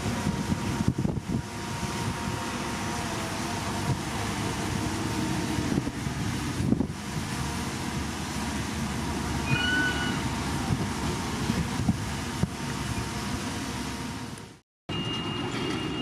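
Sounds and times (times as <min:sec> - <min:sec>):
bulldozer diesel engine: 0:00.0 - 0:16.0
clanks from steel tracks: 0:09.4 - 0:10.5, 0:14.9 - 0:16.0.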